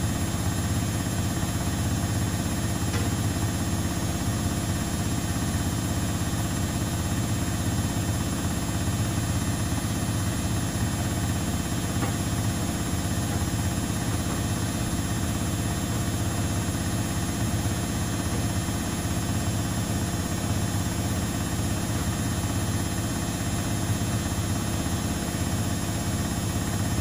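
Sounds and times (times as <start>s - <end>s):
laundry machines humming: 0.0s - 27.0s.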